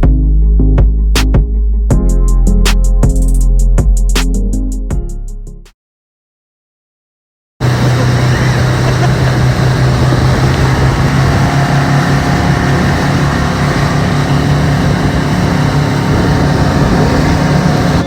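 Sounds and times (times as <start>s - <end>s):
motorboat engine drone: 7.6s - 18.0s
rush of wind and water: 7.6s - 18.0s.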